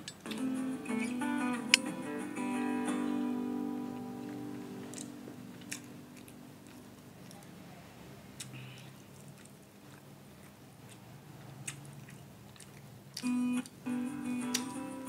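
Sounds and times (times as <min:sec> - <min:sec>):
guitar music: 0:00.0 - 0:06.7, 0:13.2 - 0:15.0
person chewing food: 0:04.8 - 0:07.7, 0:08.4 - 0:13.3.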